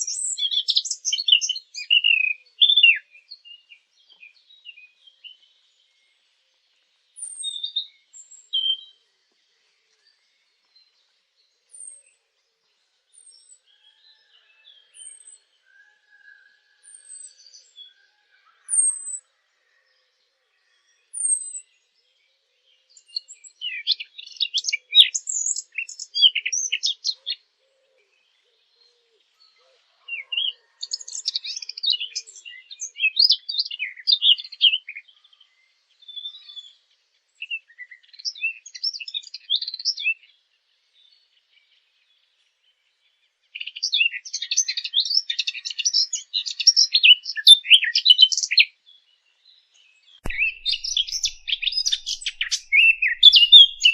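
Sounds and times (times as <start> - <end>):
songbirds calling and singing: 0.0 - 53.9
rapid bird twittering: 50.2 - 53.9.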